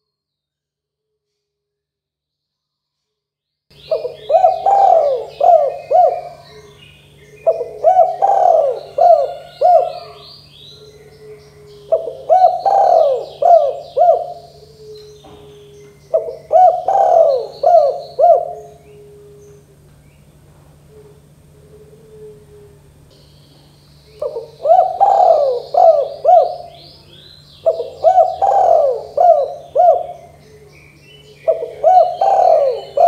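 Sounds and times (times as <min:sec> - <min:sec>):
faint low hum: 0:02.6 - 0:33.0
small birds chirping: 0:03.7 - 0:21.9, 0:23.1 - 0:33.0
dove cooing: 0:03.8 - 0:19.9, 0:20.7 - 0:23.1, 0:24.2 - 0:33.0.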